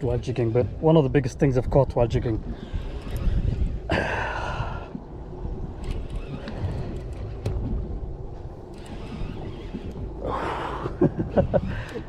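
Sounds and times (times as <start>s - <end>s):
boat engine noise: 0.0s - 12.0s
wind rumbling on microphone: 0.0s - 12.0s
fishing reel clicks: 2.8s - 3.6s.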